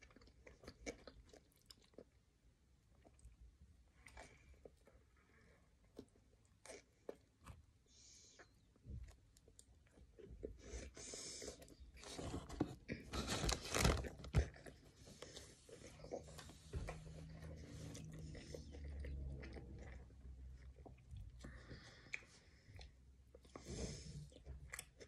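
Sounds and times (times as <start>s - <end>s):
chewing with soft crunching: 0.0s - 12.2s, 14.3s - 25.0s
paper wrapper rustling: 12.0s - 14.5s.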